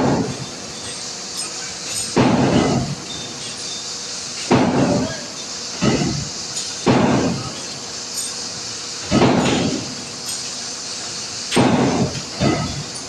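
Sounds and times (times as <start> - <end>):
heavy metal clanks: 0.0 - 3.8, 5.8 - 10.6, 11.5 - 13.0
steady background noise: 0.0 - 13.0.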